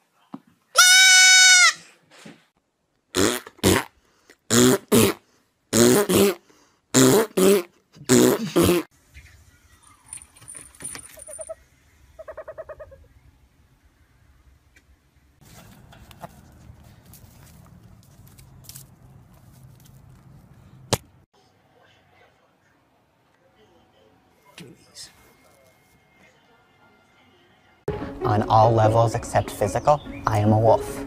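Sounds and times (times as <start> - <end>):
goat kid bleating: 0.8 - 1.8.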